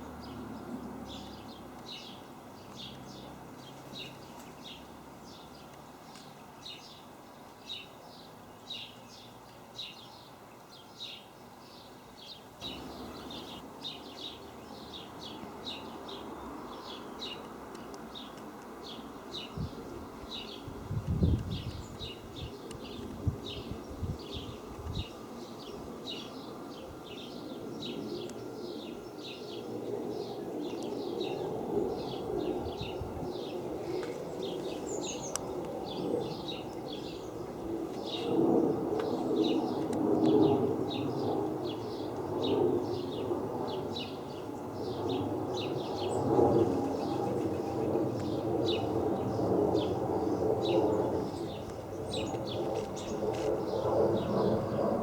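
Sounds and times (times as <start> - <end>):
bird chirping: 0.0 - 38.4, 44.0 - 54.4
airliner rumbling overhead: 12.6 - 17.4, 18.8 - 55.0.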